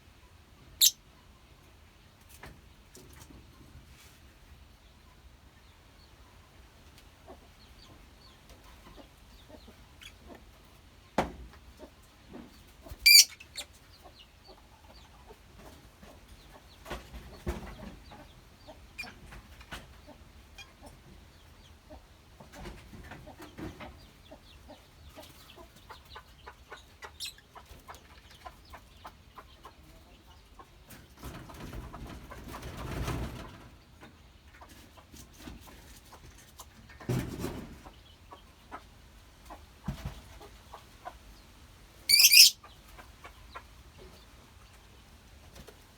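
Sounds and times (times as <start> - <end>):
lovebird shrill call: 13.1 - 13.4, 42.1 - 42.6
faint bird chirps and clicks: 42.1 - 42.5.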